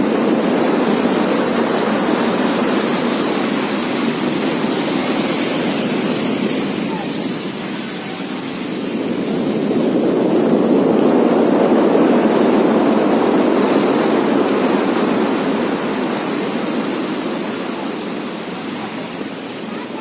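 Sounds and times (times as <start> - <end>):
storm wind gusting: 0.0 - 20.0.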